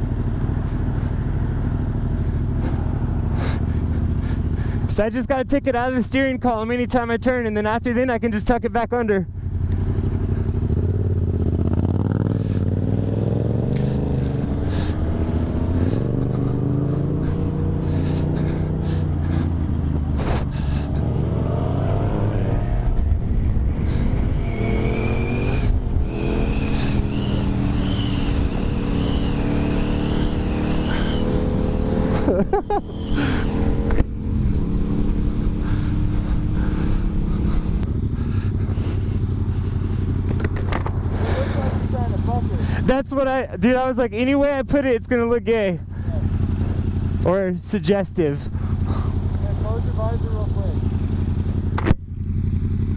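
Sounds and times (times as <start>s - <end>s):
motorcycle engine riding: 0.0s - 52.9s
thin wavering whine: 22.3s - 34.0s.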